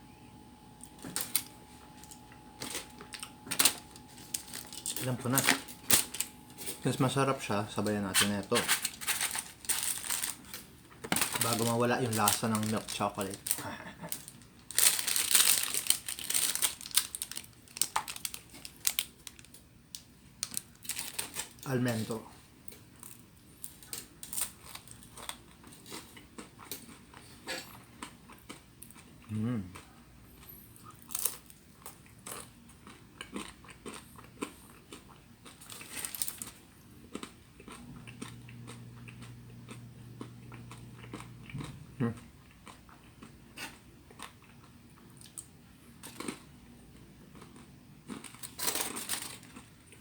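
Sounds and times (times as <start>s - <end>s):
low steady hum: 0.0s - 50.0s
plastic wrapper crinkling: 0.8s - 22.2s, 23.0s - 25.4s, 35.6s - 36.6s, 48.2s - 49.7s
person chewing crunchy food: 7.8s - 19.4s, 20.4s - 50.0s.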